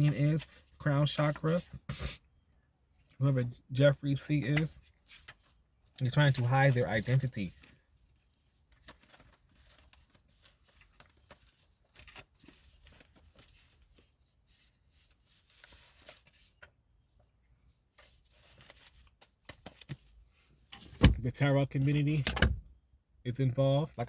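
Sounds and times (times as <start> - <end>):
cards rustling and clicking: 8.7 - 14.0, 18.0 - 20.2.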